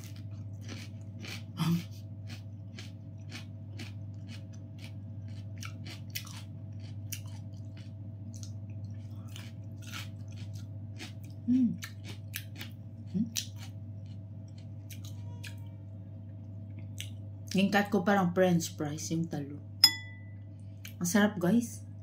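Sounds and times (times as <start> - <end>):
chewing and crunching food: 0.0 - 17.6
low electrical hum: 0.0 - 22.0
person humming: 11.4 - 11.9.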